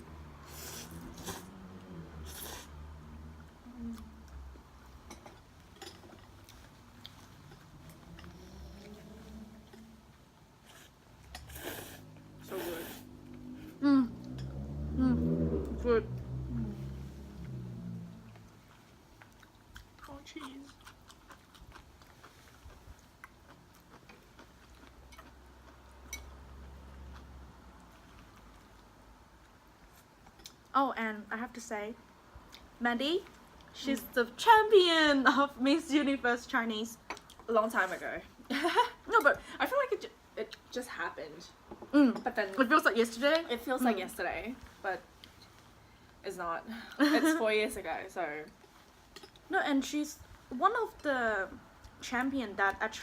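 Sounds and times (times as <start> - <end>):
chewing: 3.8 - 12.2, 17.4 - 30.7
low hum: 13.1 - 18.8.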